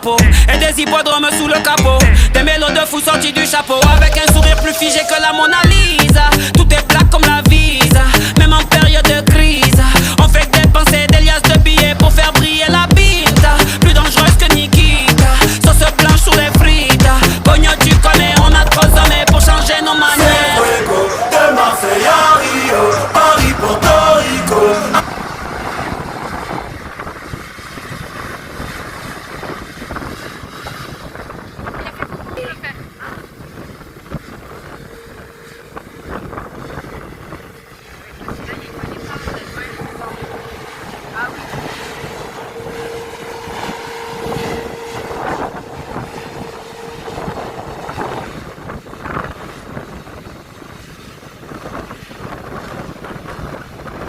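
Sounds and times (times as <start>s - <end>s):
jet engines roaring: 0.0s - 54.0s
wind buffeting microphone: 24.6s - 54.0s.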